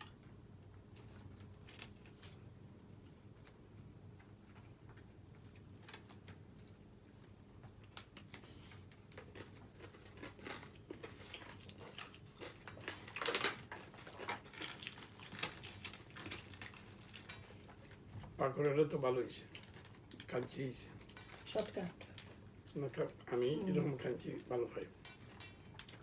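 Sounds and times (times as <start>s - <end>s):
crunchy food chewing: 0.9s - 18.0s.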